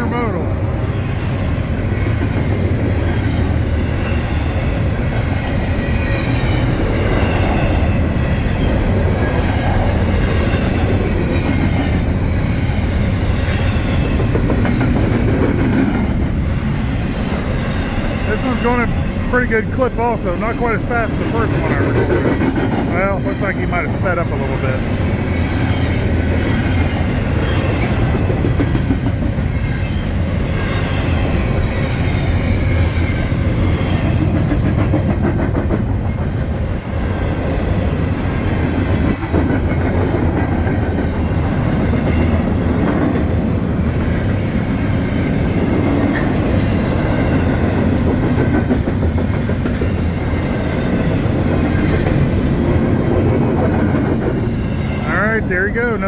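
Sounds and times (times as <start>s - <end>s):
train wheels rolling on rail: 0.0s - 56.0s.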